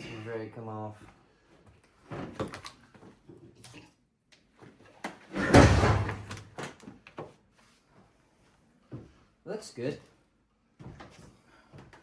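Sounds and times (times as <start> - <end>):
heavy metal clunk and scrape: 5.4 - 6.3.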